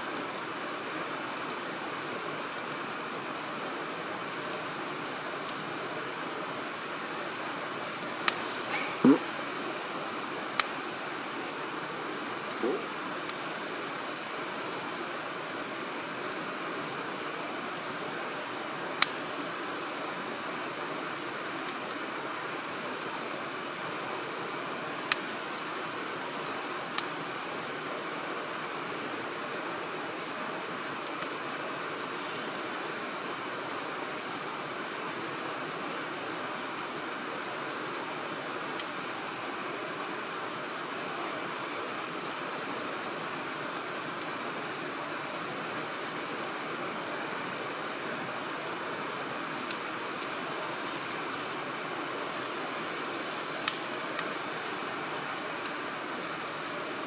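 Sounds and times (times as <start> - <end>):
campfire crackling: 0.0 - 57.0
steady fire hiss: 0.0 - 57.0
burning wood popping: 8.0 - 9.6, 12.4 - 13.5
fire popping: 8.0 - 13.5, 17.2 - 19.3, 53.6 - 57.0.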